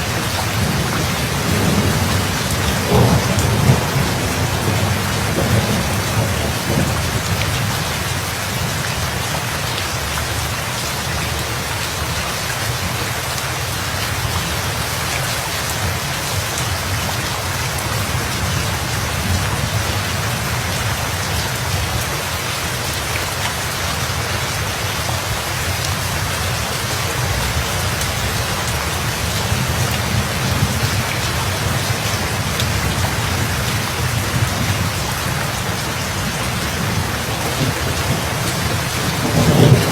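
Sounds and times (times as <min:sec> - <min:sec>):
thunder rumble: 0:00.0 - 0:08.1, 0:27.2 - 0:39.9
heavy rain pattering: 0:00.0 - 0:39.9.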